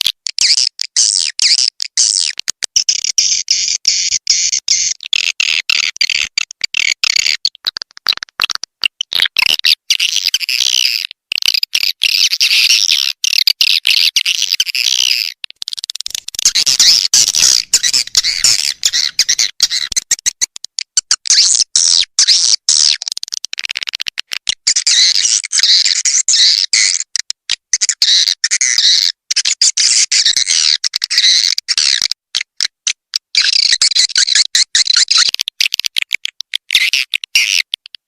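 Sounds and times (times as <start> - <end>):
swiftlets chirping and twittering: 16.1 - 20.0.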